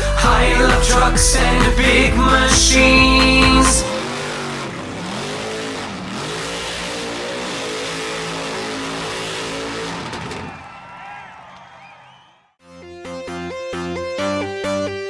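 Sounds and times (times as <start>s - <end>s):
vehicle engine revving: 0.1s - 11.1s.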